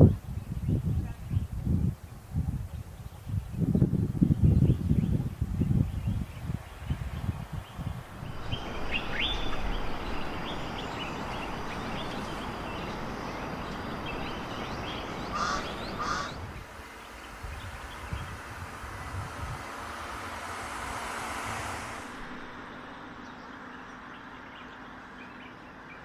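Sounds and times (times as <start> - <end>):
wind on microphone: 0.0 - 22.8
birds chirping: 2.8 - 20.4, 22.0 - 26.0
harsh bird calls: 7.9 - 18.5.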